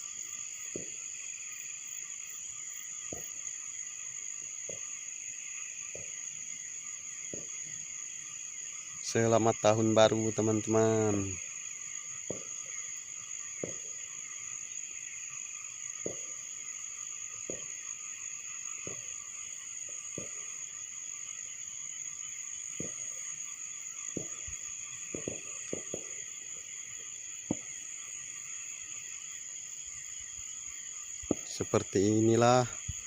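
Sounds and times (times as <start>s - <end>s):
crickets and night insects chirping: 0.0s - 33.0s
distant fireworks booms: 0.6s - 1.1s, 3.1s - 3.4s, 5.9s - 6.2s, 7.2s - 7.8s, 9.0s - 11.5s, 12.2s - 12.8s, 13.5s - 14.2s, 15.9s - 16.5s, 17.3s - 17.9s, 18.8s - 20.8s, 22.6s - 28.4s, 31.2s - 33.0s.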